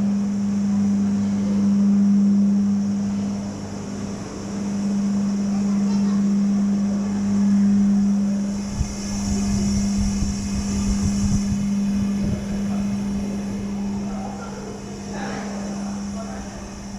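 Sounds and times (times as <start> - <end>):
low machine hum: 0.0 - 16.9
wind buffeting microphone: 8.0 - 14.7.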